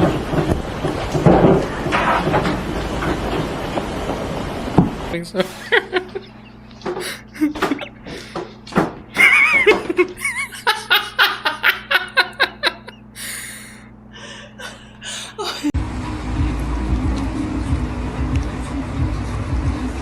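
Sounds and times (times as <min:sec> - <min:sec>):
person laughing: 0:05.4 - 0:08.4, 0:09.2 - 0:15.7.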